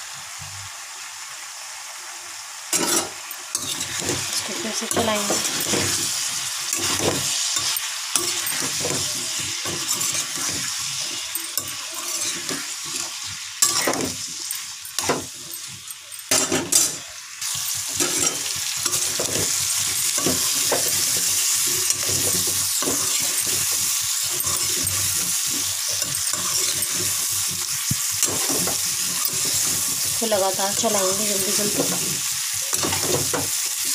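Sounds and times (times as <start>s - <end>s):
vegetables sizzling in oil: 0.0s - 33.9s
metal spoon scraping and knocking pan: 2.8s - 33.7s.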